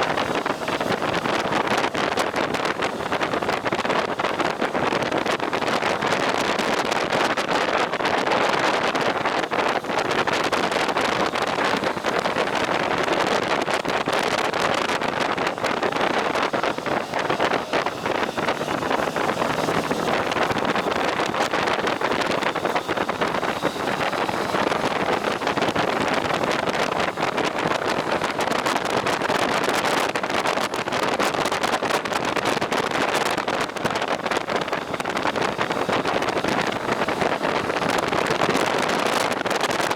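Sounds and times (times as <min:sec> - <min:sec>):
motorcycle riding at speed: 0:00.0 - 0:39.9
wind buffeting microphone: 0:00.0 - 0:39.9.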